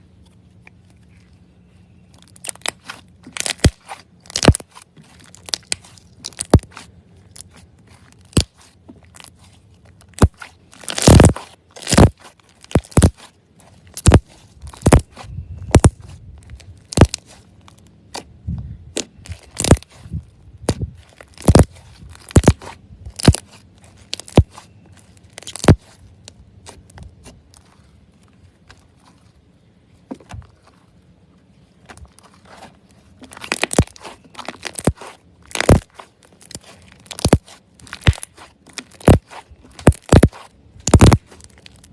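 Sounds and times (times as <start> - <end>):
slime popping and crackling: 2.2 - 9.4, 10.0 - 17.4, 18.9 - 20.0, 20.6 - 24.6, 25.2 - 26.0, 33.3 - 41.9.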